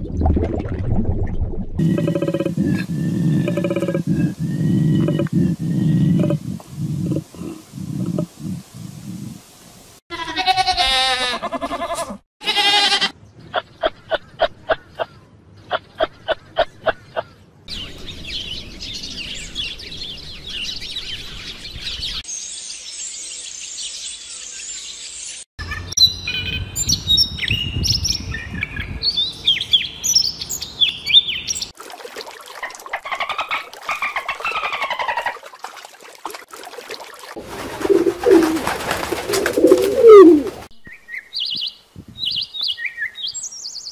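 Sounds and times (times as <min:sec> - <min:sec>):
bird song: 0:01.8 - 0:06.4, 0:13.2 - 0:31.8, 0:40.7 - 0:43.9
pigeons cooing: 0:01.8 - 0:09.3, 0:37.4 - 0:40.7
goats bleating: 0:10.1 - 0:13.1.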